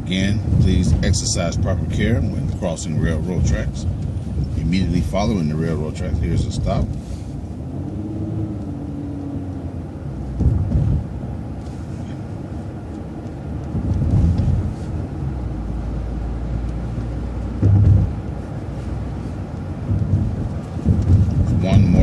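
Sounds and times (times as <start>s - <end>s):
bus engine rumble: 0.0s - 22.0s
heavy low thumps: 10.0s - 11.4s, 13.7s - 16.0s, 17.5s - 18.5s, 19.8s - 22.0s.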